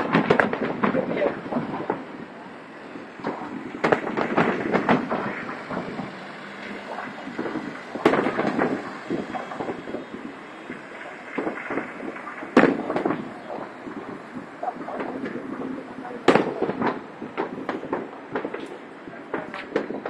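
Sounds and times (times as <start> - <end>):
fireworks bangs and crackles: 0.0 - 20.0
rumbling background: 0.0 - 20.0.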